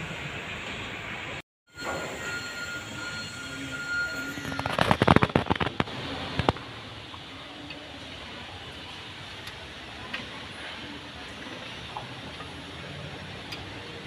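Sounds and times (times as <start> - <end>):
faint high whine: 1.8 - 5.0.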